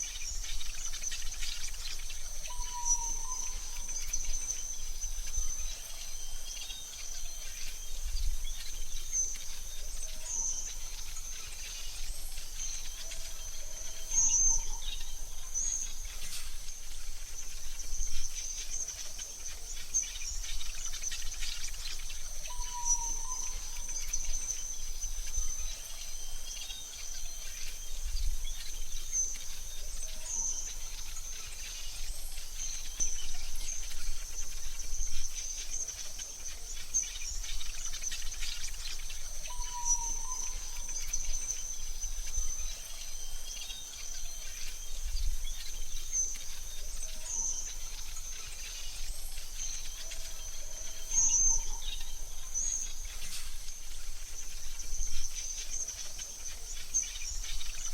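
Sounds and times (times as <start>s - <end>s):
faint bird chirps: 0.0s - 57.9s
high insect drone: 0.0s - 57.9s.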